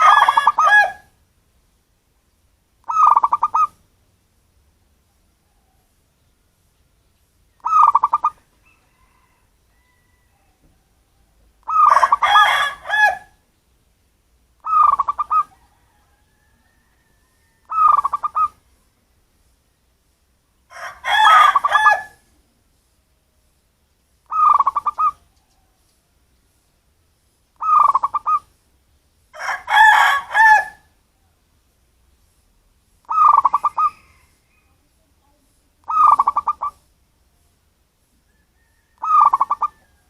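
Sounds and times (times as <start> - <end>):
doves cooing: 2.8 - 3.8, 7.6 - 10.4, 11.2 - 13.3, 14.6 - 18.6, 24.3 - 25.3, 27.6 - 28.5, 33.1 - 34.3, 35.9 - 36.8, 38.6 - 40.0.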